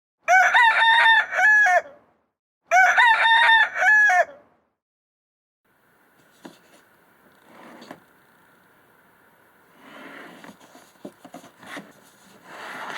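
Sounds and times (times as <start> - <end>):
rooster crowing: 0.2 - 2.0, 2.7 - 4.5.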